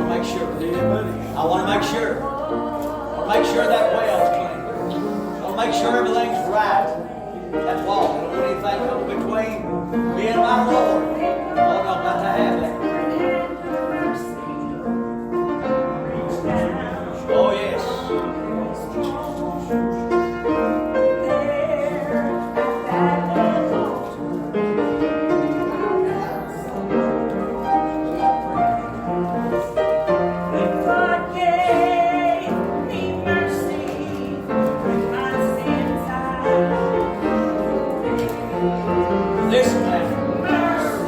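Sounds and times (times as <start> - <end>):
person singing: 0.0 - 5.2, 16.1 - 24.6, 30.3 - 41.0
piano playing hymn: 0.0 - 41.0.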